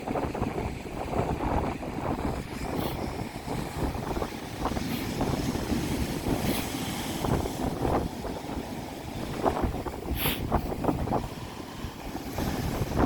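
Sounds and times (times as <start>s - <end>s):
sea waves breaking on shore: 0.0s - 13.0s
wind buffeting microphone: 0.0s - 13.0s.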